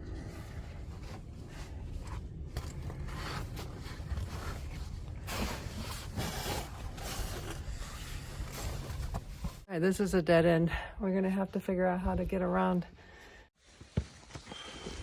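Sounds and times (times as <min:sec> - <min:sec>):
clothing and gear rustling: 0:00.1 - 0:09.7.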